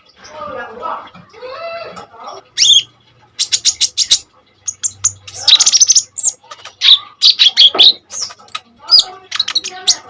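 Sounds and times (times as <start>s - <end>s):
sunbird chirping and trilling: 2.6s - 10.0s.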